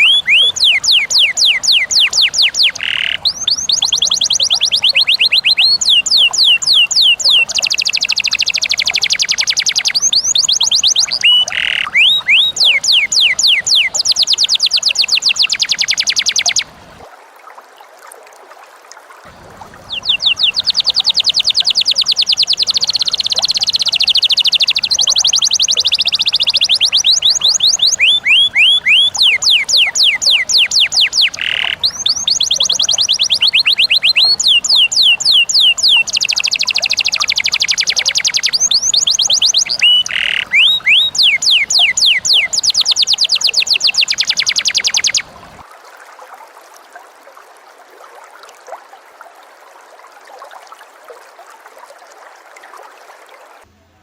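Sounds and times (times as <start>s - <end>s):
lovebird chattering: 0.0s - 16.7s, 19.8s - 45.5s
faint water trickle: 0.0s - 54.0s.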